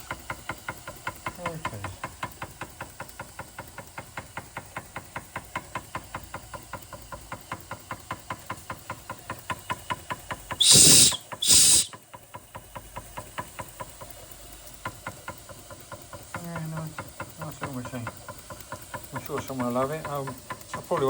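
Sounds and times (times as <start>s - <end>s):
toy steam engine ticking: 0.0s - 21.0s
steam hissing bursts: 7.4s - 12.2s.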